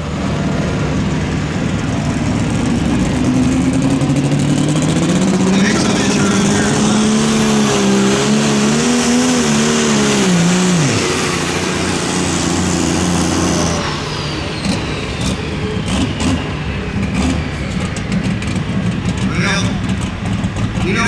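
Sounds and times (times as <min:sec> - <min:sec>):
engine at full throttle: 0:00.0 - 0:21.0
engine pops: 0:14.7 - 0:21.0.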